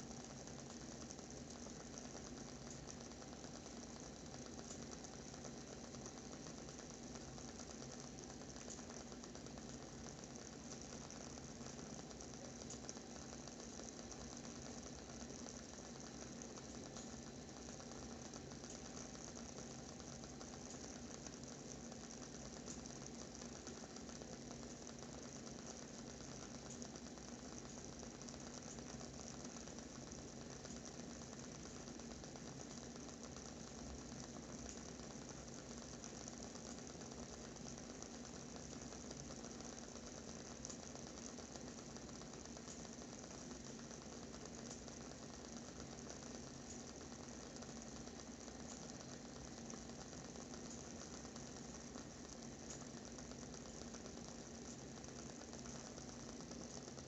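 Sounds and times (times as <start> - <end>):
candle wooden wick crackling: 0.0 - 57.0
low steady hum: 0.0 - 57.0.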